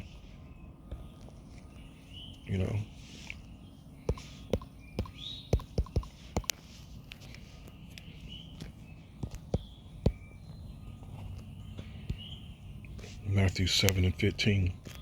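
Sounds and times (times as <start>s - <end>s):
sharp clicks and knocks: 4.1s - 13.1s.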